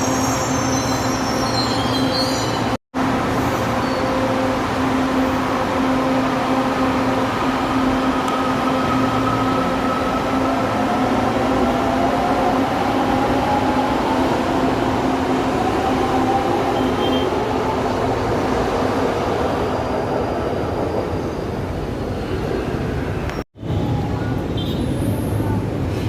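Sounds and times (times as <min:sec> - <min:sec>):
electric train humming: 0:03.0 - 0:21.2.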